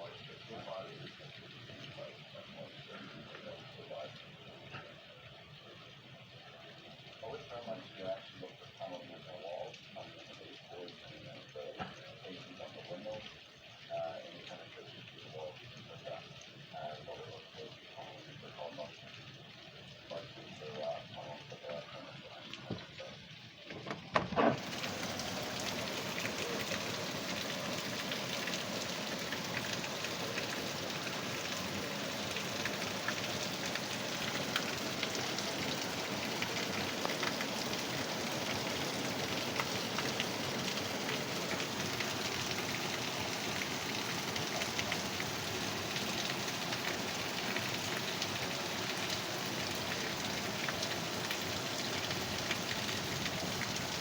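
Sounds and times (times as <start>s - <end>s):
heavy rain pattering: 0.0s - 54.0s.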